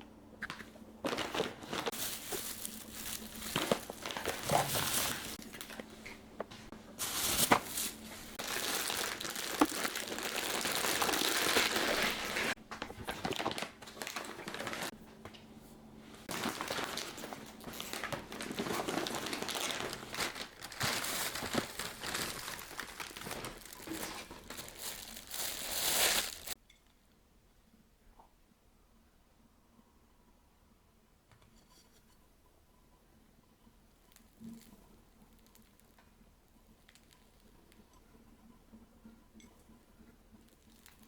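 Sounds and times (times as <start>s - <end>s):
plastic packaging crinkling: 1.0s - 6.1s, 7.0s - 14.9s, 16.2s - 26.6s, 40.5s - 41.0s.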